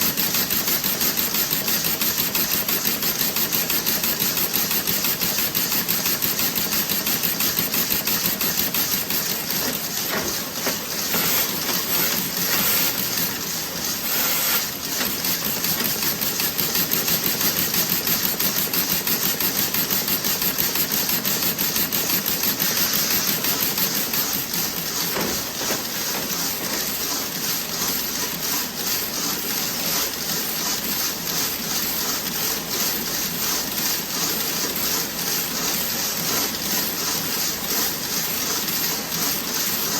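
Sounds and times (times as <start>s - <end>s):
knitting machine clattering: 0.0s - 27.2s.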